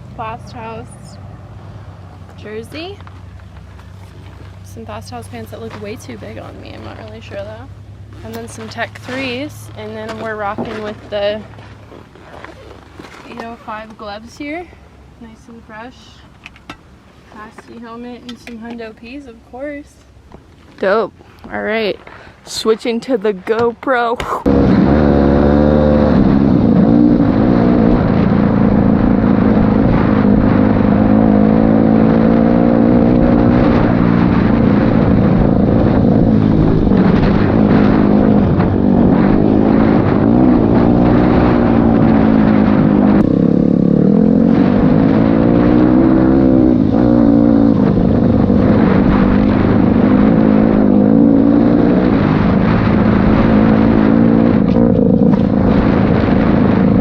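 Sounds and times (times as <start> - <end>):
dirt bike engine revving: 24.4 - 57.0.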